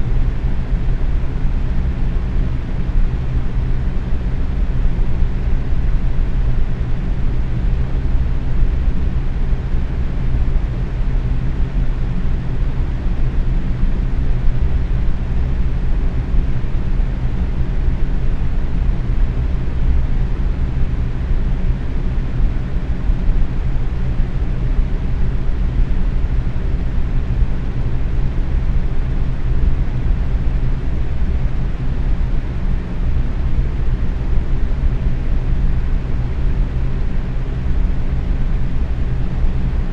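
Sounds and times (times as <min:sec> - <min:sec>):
box fan running: 0:00.0 - 0:39.9
faint steady hum: 0:00.0 - 0:39.9.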